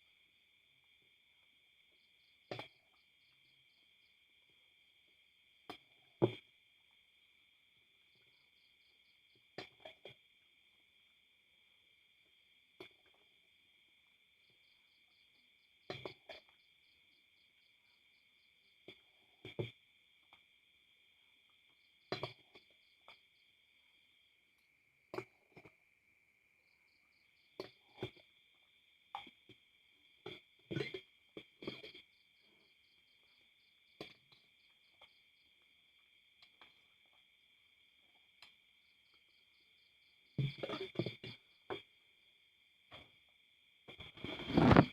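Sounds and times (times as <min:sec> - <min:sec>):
crickets chirring: 0:26.1 - 0:44.9
insects chirring: 0:37.1 - 0:44.9.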